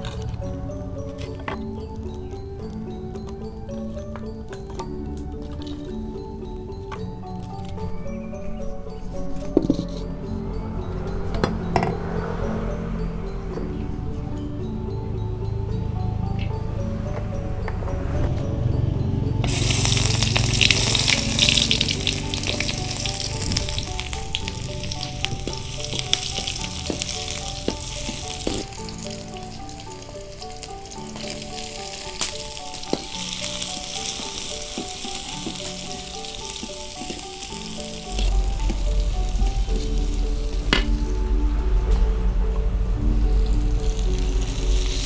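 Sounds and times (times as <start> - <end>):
food sizzling in hot oil: 19.4 - 41.1, 43.2 - 45.0.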